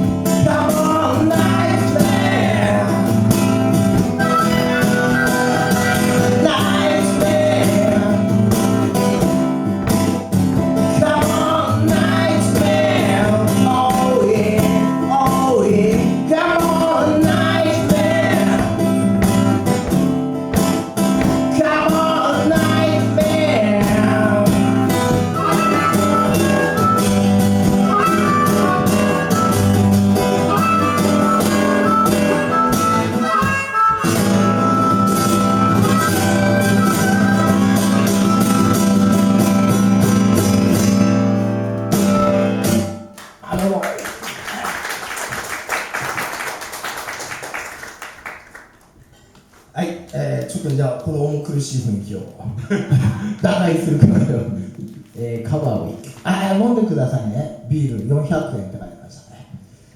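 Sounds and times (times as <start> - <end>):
live band playing: 0.0 - 43.1.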